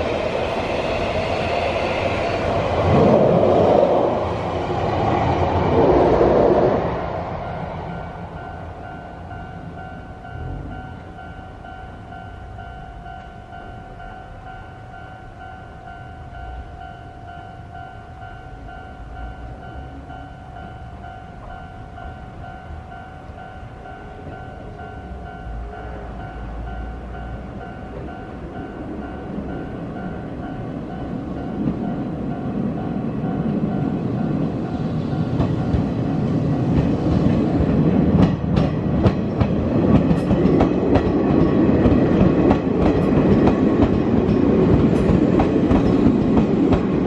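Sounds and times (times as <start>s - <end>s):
train crossing steel bridge: 0.0s - 47.0s
level-crossing bell ringing: 7.4s - 36.3s.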